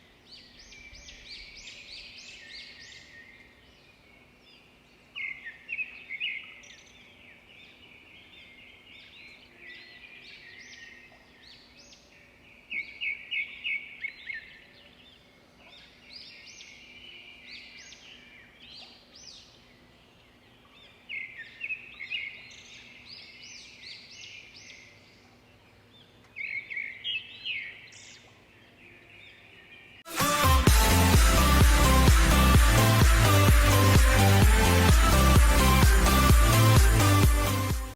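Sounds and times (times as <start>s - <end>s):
bird chirping song: 0.0s - 30.1s
music: 30.1s - 37.9s.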